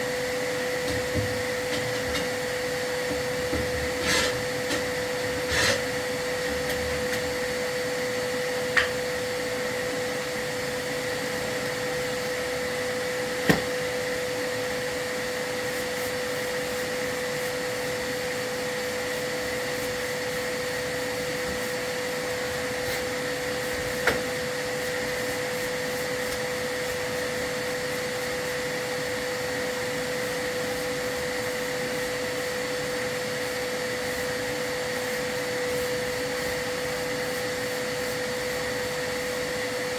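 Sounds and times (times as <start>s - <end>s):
vacuum whining: 0.0s - 39.9s.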